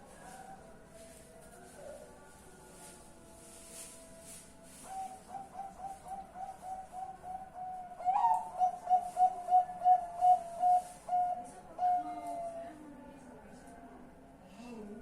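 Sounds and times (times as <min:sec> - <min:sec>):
dove cooing: 0:04.8 - 0:12.6.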